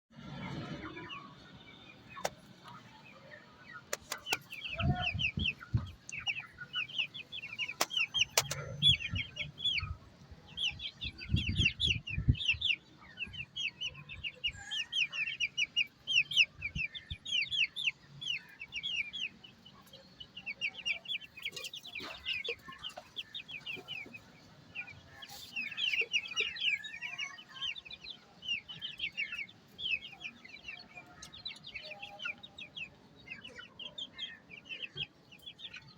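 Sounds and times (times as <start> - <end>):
hens clucking: 3.8 - 10.8, 17.9 - 35.9.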